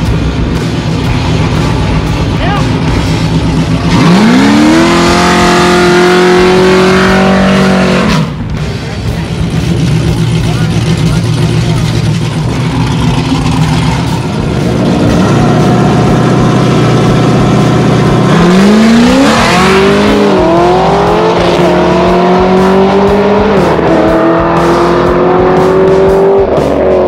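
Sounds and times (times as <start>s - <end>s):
car engines accelerating and shifting: 0.0s - 27.0s
race car engines revving: 0.0s - 27.0s.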